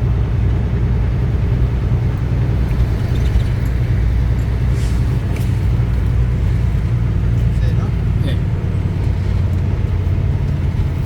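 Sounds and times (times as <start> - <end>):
truck diesel engine rumble: 0.0 - 11.0.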